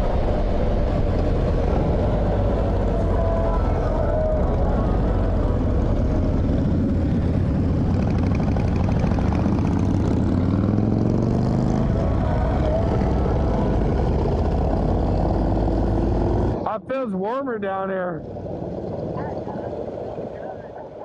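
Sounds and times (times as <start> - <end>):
wind rush: 0.0 - 16.6
motorcycle accelerating: 0.0 - 16.7, 18.2 - 21.0
motorcycle engines rumbling: 0.0 - 21.0.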